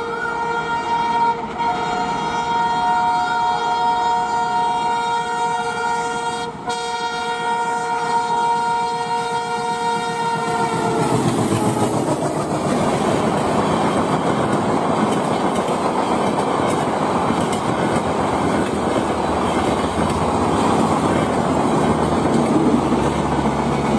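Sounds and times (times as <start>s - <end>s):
train horn: 0.0s - 12.4s
train coaches rumbling and clacking: 0.0s - 23.9s.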